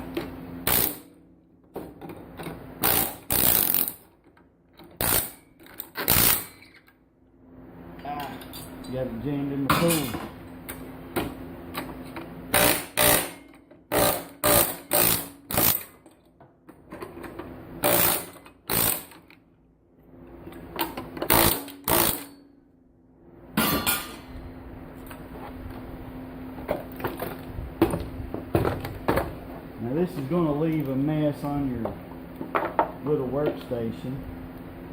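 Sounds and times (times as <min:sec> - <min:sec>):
steady low hum: 0:00.0 - 0:34.9
air hammer firing in rapid bursts: 0:00.6 - 0:01.1, 0:02.8 - 0:04.0, 0:12.5 - 0:13.4.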